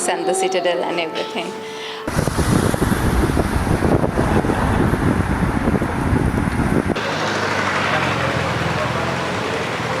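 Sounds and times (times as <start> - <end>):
wind rumbling on microphone: 2.1 - 7.0
engine hum: 2.1 - 10.0
traffic noise: 2.1 - 10.0.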